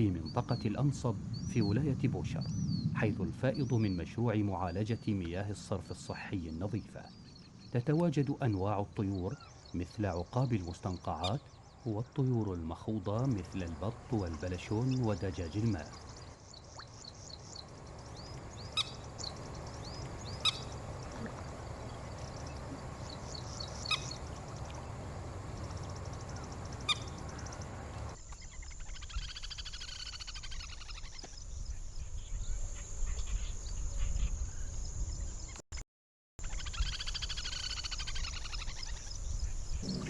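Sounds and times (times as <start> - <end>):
low rumble: 0.0 - 7.9
water birds chirping: 0.0 - 34.4, 36.4 - 40.0
fast chattering bird calls: 22.6 - 24.2, 36.4 - 39.2, 39.8 - 40.0.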